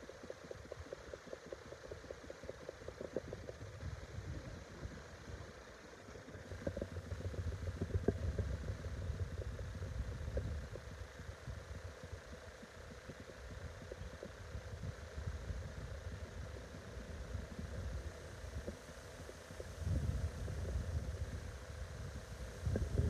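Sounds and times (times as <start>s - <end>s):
wind buffeting microphone: 19.6s - 23.0s.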